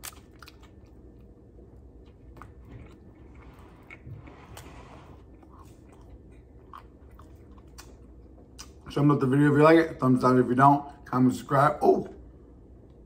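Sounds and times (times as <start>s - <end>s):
person chewing food: 0.0s - 8.9s.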